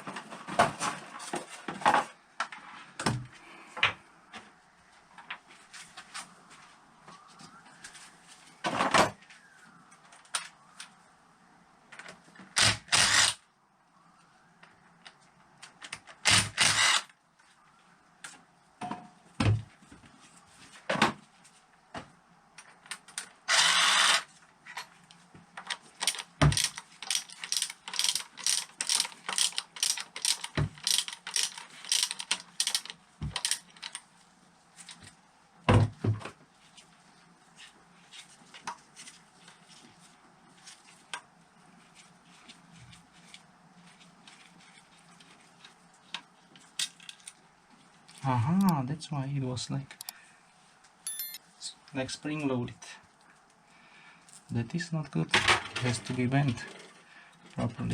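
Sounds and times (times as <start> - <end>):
ratchet wrench clicking: 26.0 - 34.0.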